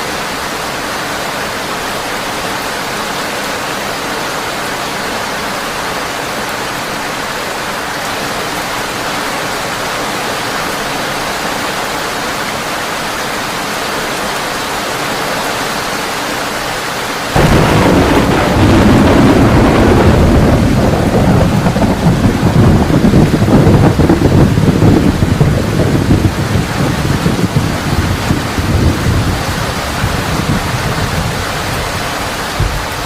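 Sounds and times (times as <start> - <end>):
heavy rain on a tin roof: 0.0 - 33.0
deep thunder rumble: 17.3 - 33.0.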